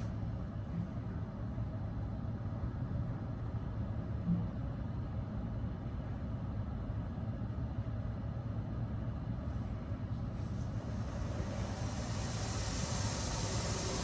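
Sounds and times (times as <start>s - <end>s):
car wash machine running: 10.4s - 14.0s.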